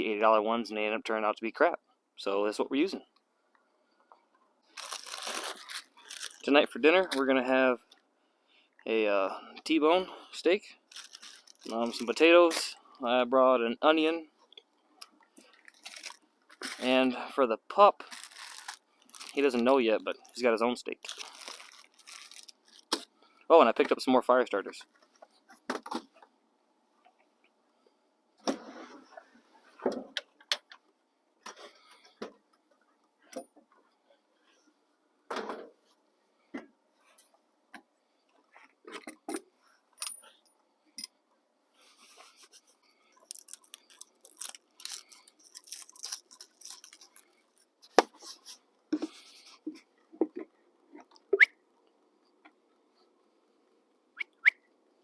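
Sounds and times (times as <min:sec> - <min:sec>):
rustling and crinkling: 0:04.0 - 0:08.0, 0:10.8 - 0:12.8, 0:14.4 - 0:17.0, 0:18.0 - 0:23.2, 0:41.8 - 0:51.2.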